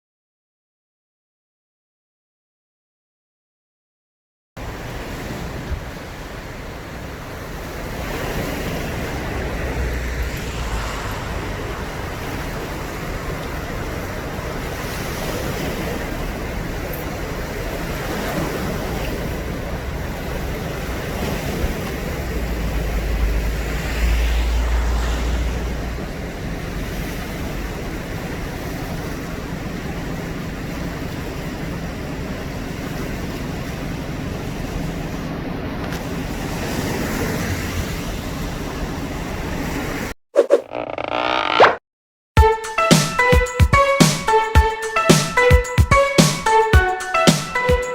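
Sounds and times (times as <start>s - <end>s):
floodwater rushing: 4.6s - 30.9s
wind buffeting microphone: 5.0s - 29.0s.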